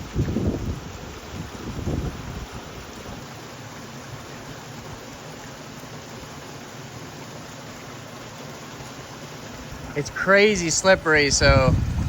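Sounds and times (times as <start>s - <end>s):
flowing stream water: 0.0s - 12.0s.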